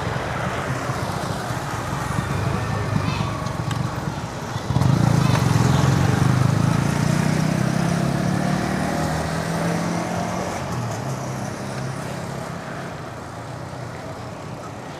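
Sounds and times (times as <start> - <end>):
street traffic hiss: 0.0 - 14.9
vehicle engine driving away: 1.8 - 12.4.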